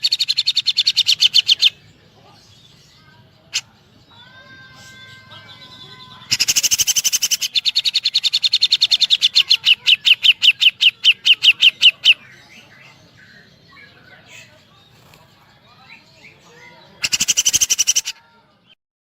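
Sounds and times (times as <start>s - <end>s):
bird trilling rapidly: 6.2s - 12.4s, 17.0s - 18.2s.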